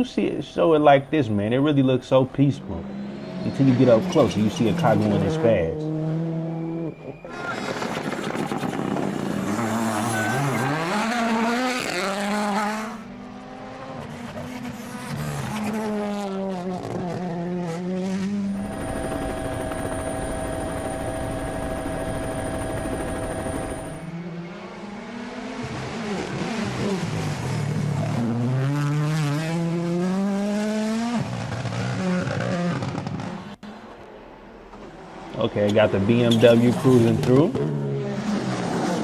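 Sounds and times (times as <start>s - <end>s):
rally car engines revving: 0.0s - 39.0s
steady even tone: 18.6s - 24.1s.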